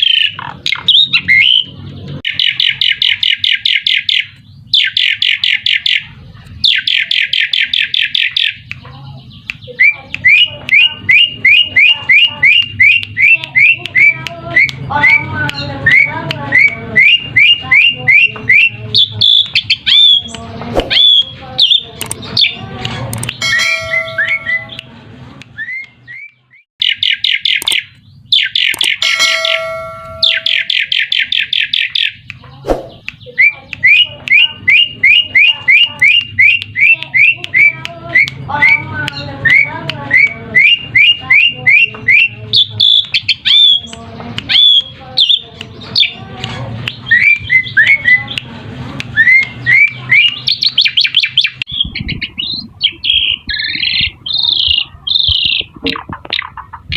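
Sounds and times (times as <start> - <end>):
starling rattling chatter: 0.0 - 26.2, 28.5 - 56.9.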